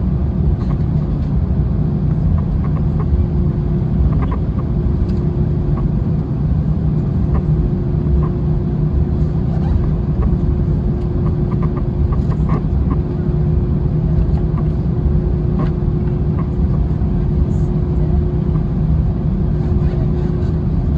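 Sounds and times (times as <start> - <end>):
aircraft cabin engine rumble: 0.0 - 20.9.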